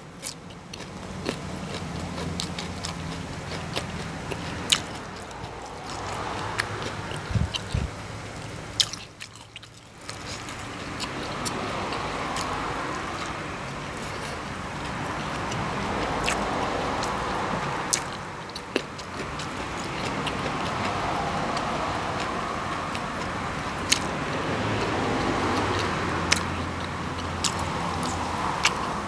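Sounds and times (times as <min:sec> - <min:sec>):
person chewing food: 0:00.2 - 0:29.0
background rush: 0:00.9 - 0:29.0
wet mouth clicks and smacks: 0:25.1 - 0:28.8.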